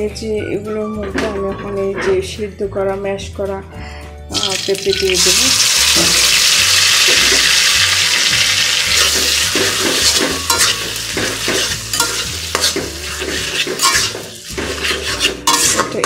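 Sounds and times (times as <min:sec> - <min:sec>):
food sizzling in hot oil: 0:04.4 - 0:16.0
spoon scraping a pan: 0:08.9 - 0:16.0.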